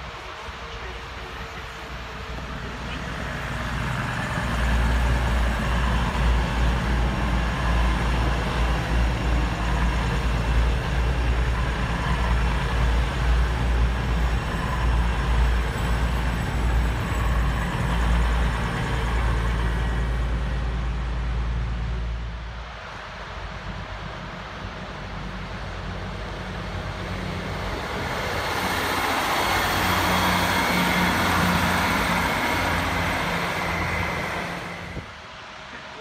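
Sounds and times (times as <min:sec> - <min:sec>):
trains passing at speed: 0:00.0 - 0:36.0.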